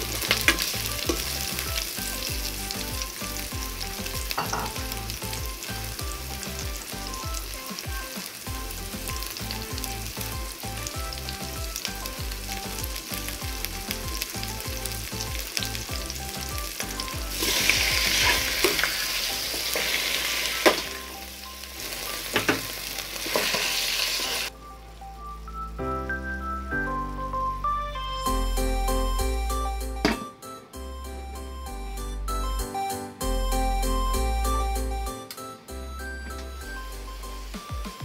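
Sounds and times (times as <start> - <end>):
onions sizzling in hot oil: 0.0 - 24.5.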